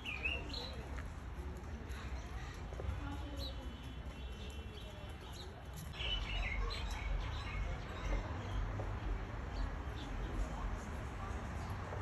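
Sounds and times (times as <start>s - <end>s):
small birds chirping: 0.0s - 1.0s.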